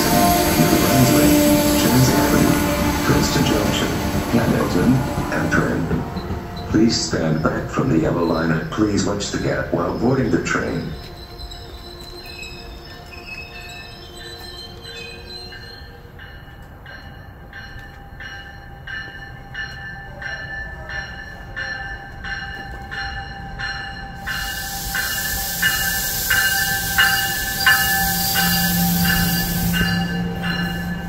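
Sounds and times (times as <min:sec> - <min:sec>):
loud hiss: 0:24.2 - 0:31.0.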